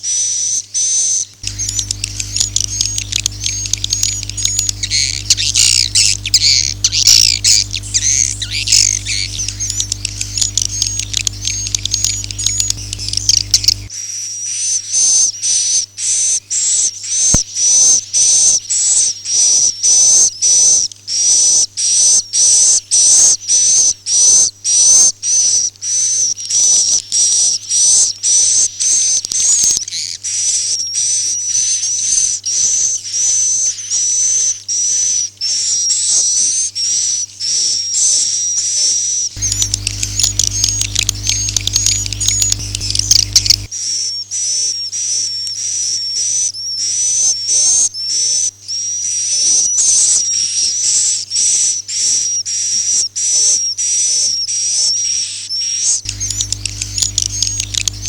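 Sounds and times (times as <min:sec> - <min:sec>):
low hum: 0:01.4 - 0:13.9, 0:39.4 - 0:43.7, 0:56.1 - 0:58.0.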